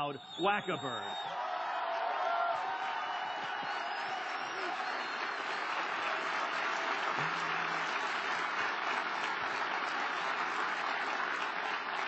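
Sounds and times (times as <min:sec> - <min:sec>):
audience applauding: 0:00.7 - 0:12.0.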